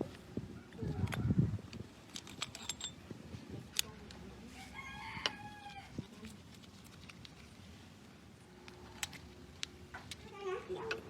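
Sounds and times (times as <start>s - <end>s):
rooster crowing: 4.6s - 6.0s.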